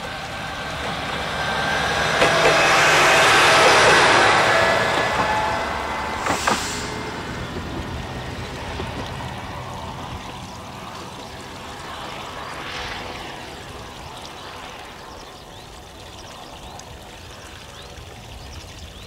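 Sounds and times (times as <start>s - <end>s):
diesel railcar engine and wheels: 0.0s - 14.7s.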